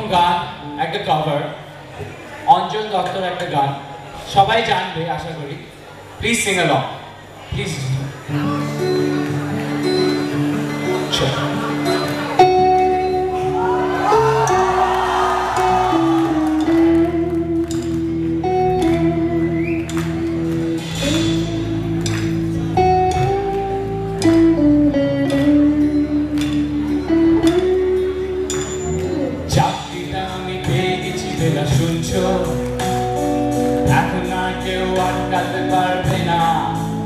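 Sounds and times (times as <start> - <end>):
rock band playing: 8.3 - 37.0.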